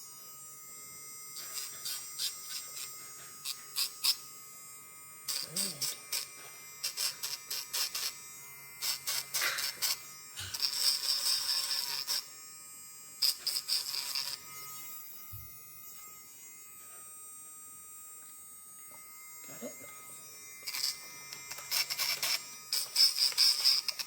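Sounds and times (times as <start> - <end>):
grinder motor whine: 0.0 - 24.0
nail grinder scratchy grinding: 1.4 - 4.2, 5.2 - 8.2, 8.8 - 12.4, 13.2 - 16.0, 20.6 - 24.0.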